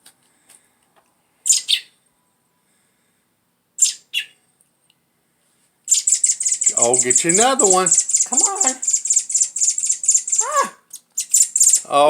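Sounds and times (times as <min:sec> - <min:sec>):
baby bird chirping: 0:01.5 - 0:01.9, 0:03.8 - 0:04.4, 0:05.9 - 0:11.9.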